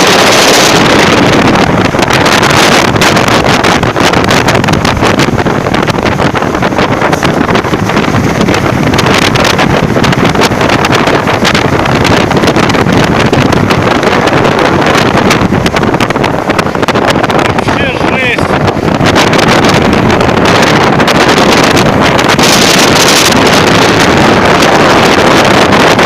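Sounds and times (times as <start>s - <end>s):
strong wind on microphone: 0.0s - 26.0s.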